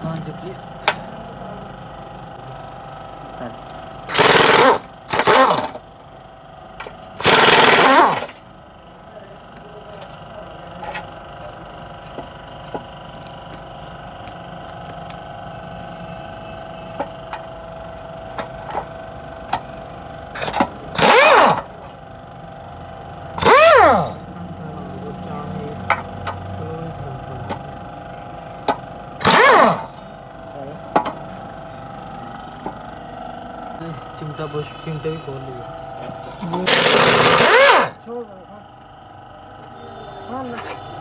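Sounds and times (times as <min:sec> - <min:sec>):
pneumatic impact wrench bursts: 0:04.1 - 0:05.8, 0:07.2 - 0:08.4, 0:20.4 - 0:21.8, 0:23.4 - 0:24.2, 0:29.2 - 0:30.0, 0:36.6 - 0:38.0.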